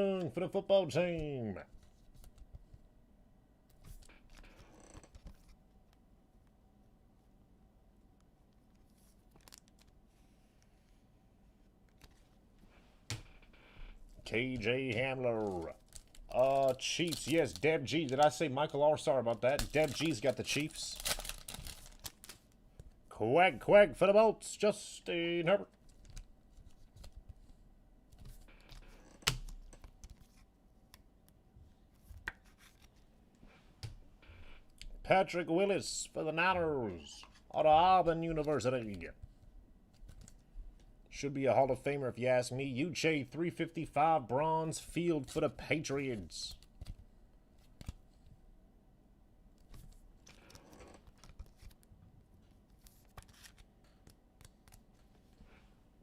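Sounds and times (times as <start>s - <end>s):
cards and wrappers rustling: 8.8s - 10.3s, 14.1s - 23.0s, 49.6s - 51.9s, 52.5s - 55.6s.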